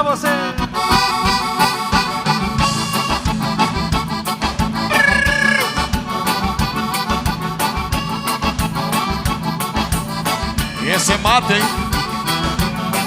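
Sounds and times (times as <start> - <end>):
piano accordion: 0.0 - 13.0
dance band playing: 3.4 - 7.2.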